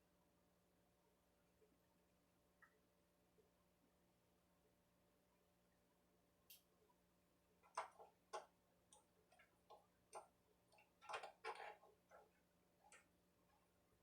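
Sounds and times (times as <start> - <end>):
faint clicks and light knocks: 7.6 - 13.8.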